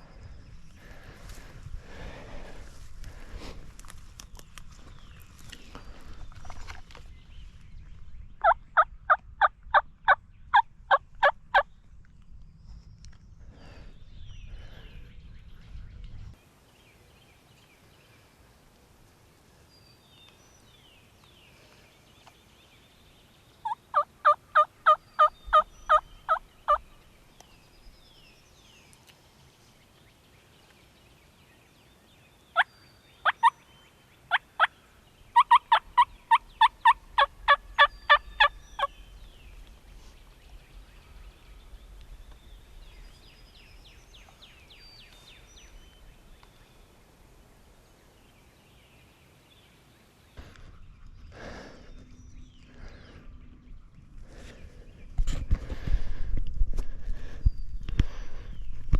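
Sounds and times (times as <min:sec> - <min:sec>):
low rumble: 0:07.1 - 0:16.4
turkey yelping: 0:23.6 - 0:26.8, 0:35.4 - 0:38.9.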